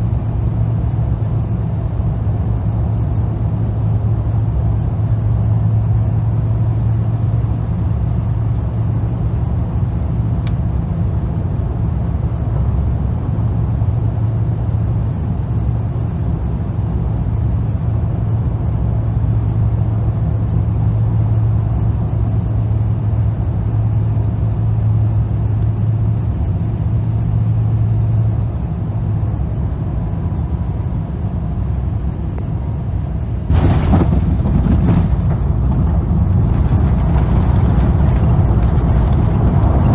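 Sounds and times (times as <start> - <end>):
aircraft cabin engine rumble: 0.0 - 39.9
cabin hum: 31.8 - 39.9
loud rushing noise: 33.4 - 38.8.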